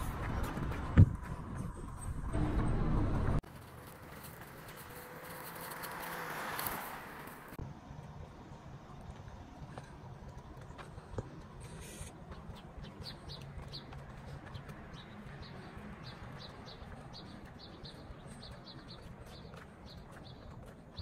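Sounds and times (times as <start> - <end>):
small birds chirping: 8.4 - 21.0.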